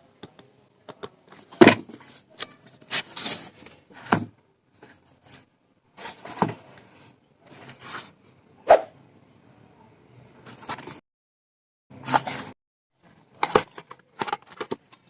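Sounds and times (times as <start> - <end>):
box and packaging being opened: 1.3 - 4.1, 12.0 - 12.5, 13.2 - 15.0.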